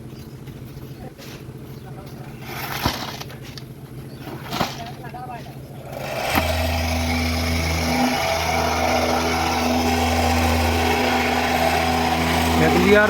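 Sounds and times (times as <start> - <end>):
small engine running: 5.5 - 13.0.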